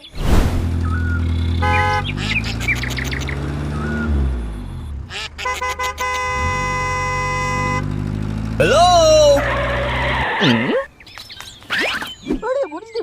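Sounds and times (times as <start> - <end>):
birds chirping: 0.0 - 7.6, 8.6 - 13.0
low engine hum: 0.2 - 10.0
horn toots and blast: 1.5 - 2.7, 5.0 - 8.1.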